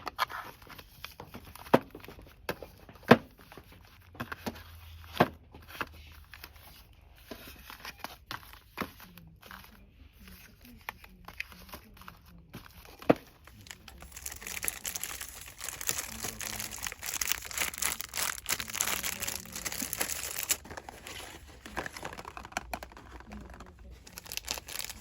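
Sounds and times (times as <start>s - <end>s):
packaging crinkling: 13.4s - 25.0s.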